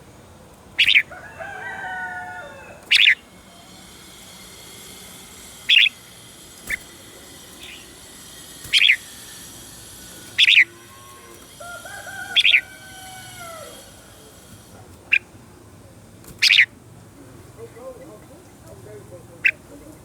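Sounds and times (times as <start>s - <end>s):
lower wavering bird calls: 0.0s - 18.6s, 19.4s - 20.0s
bird giving bright calls: 0.8s - 15.4s, 16.4s - 16.8s.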